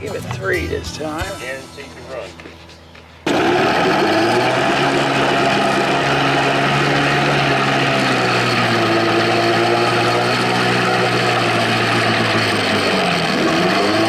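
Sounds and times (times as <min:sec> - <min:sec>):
outboard motor idling: 0:03.2 - 0:14.0.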